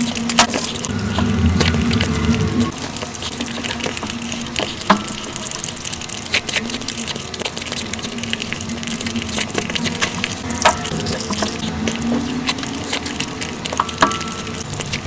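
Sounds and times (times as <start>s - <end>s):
wet chewing and smacking: 0.0s - 15.0s.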